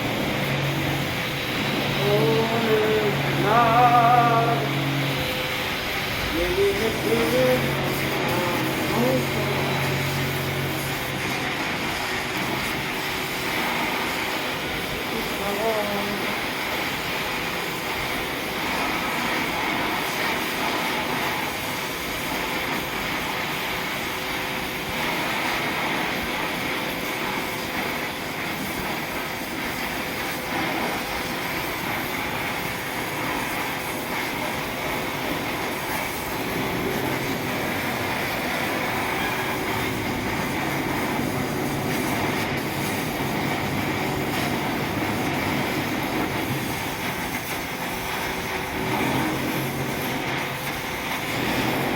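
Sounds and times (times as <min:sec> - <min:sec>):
gas welding torch hissing: 0:00.0 - 0:51.9.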